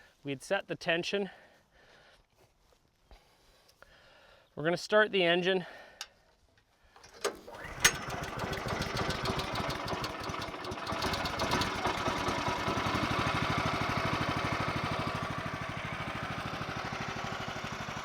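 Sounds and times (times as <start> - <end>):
single-cylinder engine idling: 7.0 - 18.0.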